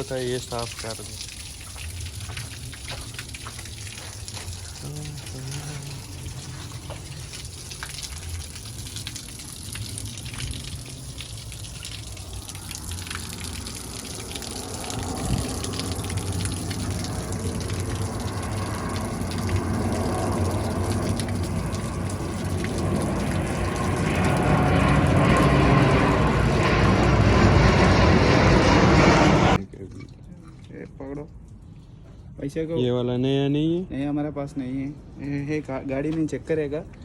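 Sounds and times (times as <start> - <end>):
water gushing: 0.0 - 29.6.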